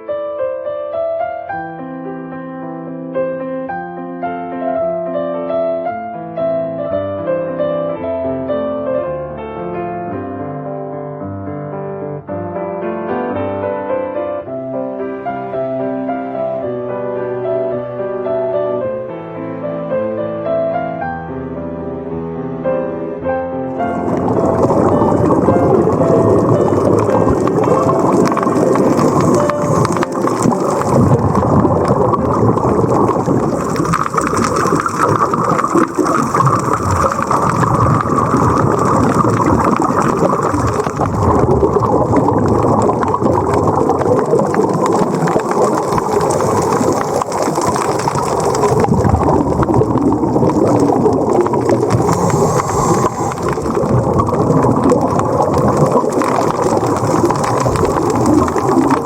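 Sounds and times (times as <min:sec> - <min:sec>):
underwater bubbling and crackling: 0:23.7 - 0:59.0.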